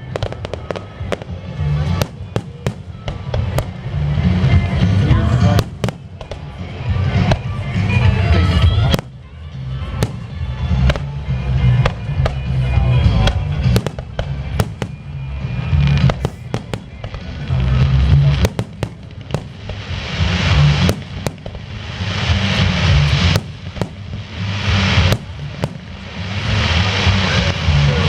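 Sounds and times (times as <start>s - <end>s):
fireworks bursting with bangs: 0.0s - 28.0s
fireworks crackling hiss: 0.0s - 28.0s.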